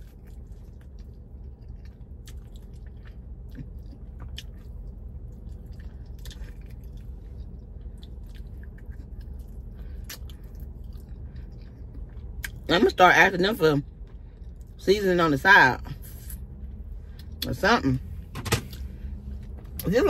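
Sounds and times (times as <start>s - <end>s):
person chewing chicken wings: 0.0s - 12.7s.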